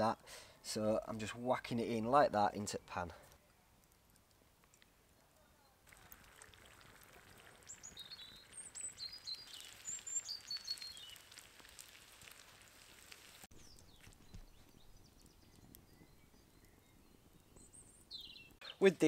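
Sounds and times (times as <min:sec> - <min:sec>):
outdoor ambience: 0:00.0 - 0:19.0
food sizzling in oil: 0:05.9 - 0:13.5.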